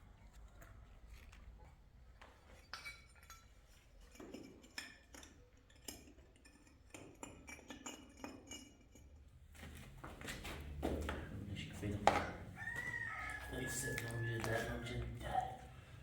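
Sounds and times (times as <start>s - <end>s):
clinks and taps of small objects: 2.6s - 9.2s, 12.0s - 12.4s.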